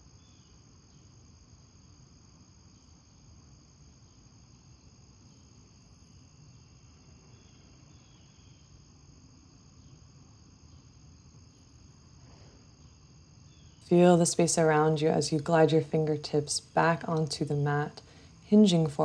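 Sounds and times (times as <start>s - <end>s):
cricket chorus chirring: 0.0s - 19.0s
low steady rumble: 13.9s - 19.0s.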